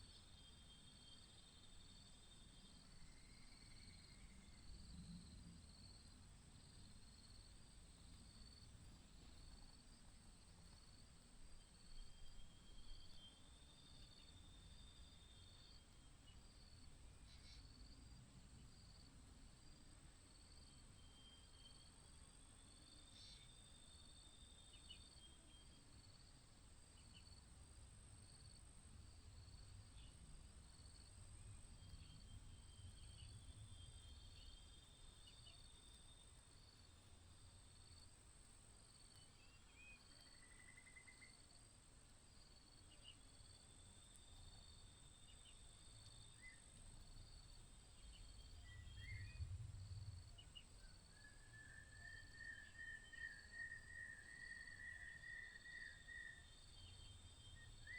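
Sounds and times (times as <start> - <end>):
faint chirps: 11.6 - 18.1, 20.6 - 26.2, 38.8 - 41.7, 44.4 - 57.9
insects trilling: 42.3 - 57.9
low rumble: 48.7 - 50.6.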